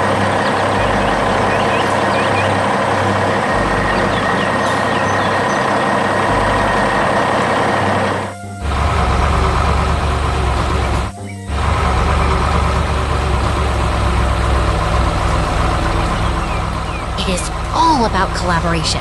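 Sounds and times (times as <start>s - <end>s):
heavy machinery engines running: 0.0s - 19.0s
music: 0.0s - 19.0s.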